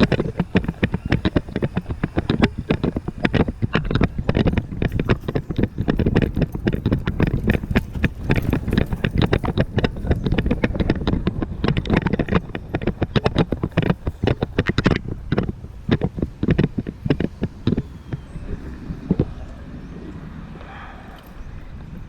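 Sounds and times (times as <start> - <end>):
low rumble: 15.0 - 22.0.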